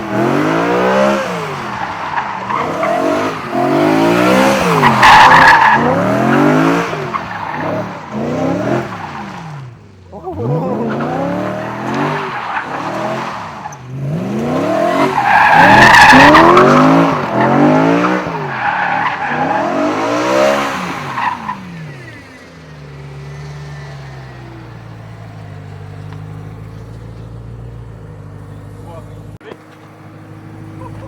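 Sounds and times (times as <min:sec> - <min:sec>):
car engine revving: 0:00.0 - 0:31.0
tyres squealing: 0:00.4 - 0:24.7.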